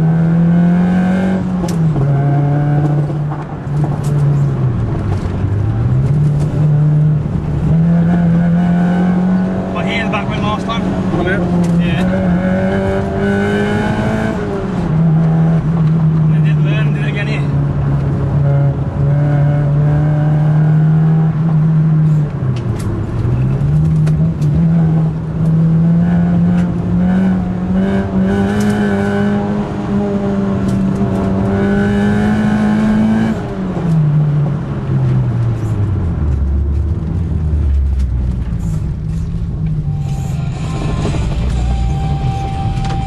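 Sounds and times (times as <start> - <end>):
car engine from inside cabin: 0.0 - 43.0.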